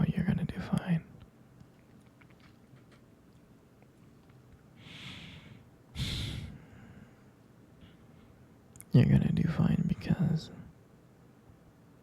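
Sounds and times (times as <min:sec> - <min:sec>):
man breathing: 0:04.8 - 0:08.4.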